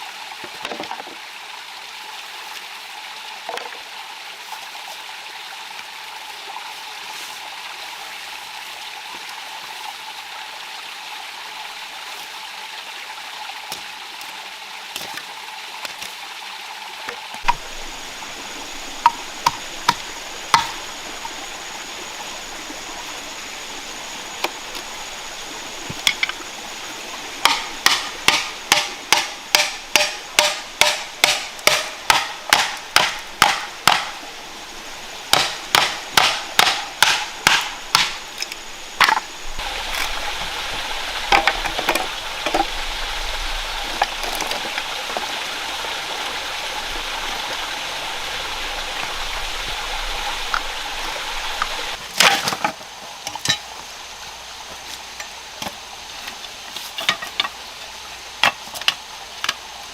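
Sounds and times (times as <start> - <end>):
rushing water: 0.0 - 59.9
rhythmic hammering: 17.5 - 21.5, 27.4 - 34.2, 35.3 - 38.3.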